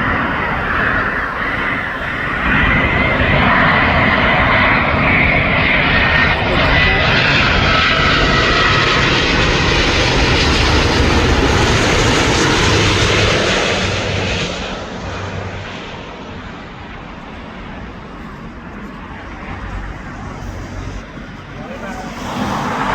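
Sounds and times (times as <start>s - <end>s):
jet airliner passing overhead: 0.0s - 22.9s.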